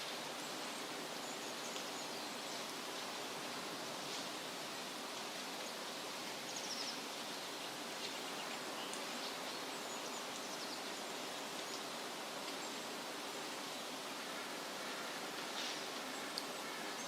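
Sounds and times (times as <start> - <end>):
wind rustling through leaves: 0.0 - 17.0.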